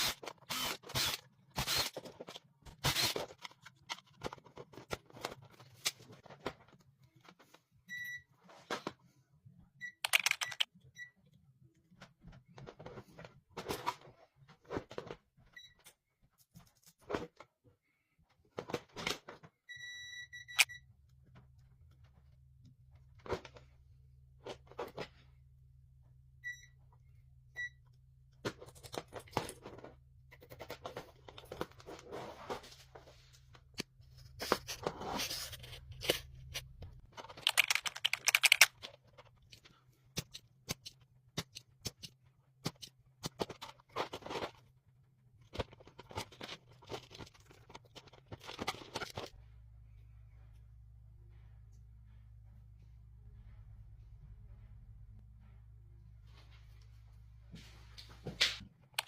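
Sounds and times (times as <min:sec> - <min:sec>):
clicks scrapes and rustling: 0:33.7 - 0:44.6
low mains hum: 0:43.6 - 0:59.0.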